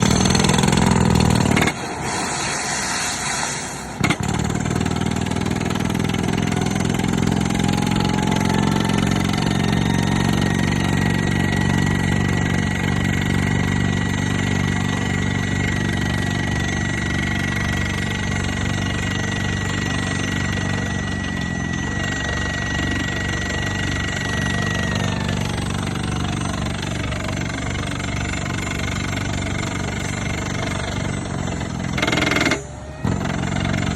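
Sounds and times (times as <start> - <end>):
hydraulic rock drill hammering: 0.0 - 1.8, 4.0 - 33.9
excavator engine: 0.0 - 33.9
thin high whine: 1.6 - 4.0, 5.8 - 33.3
short hiss: 1.8 - 4.0.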